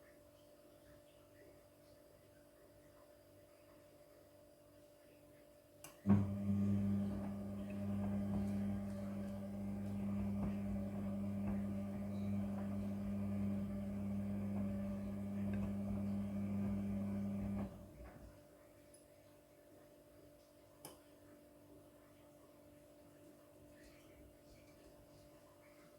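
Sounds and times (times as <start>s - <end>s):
washing machine humming: 6.0s - 18.4s.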